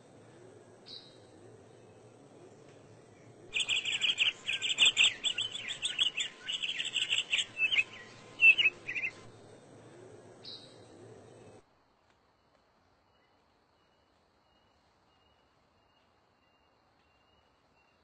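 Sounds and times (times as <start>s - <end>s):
songbird twittering song: 0.7s - 9.6s.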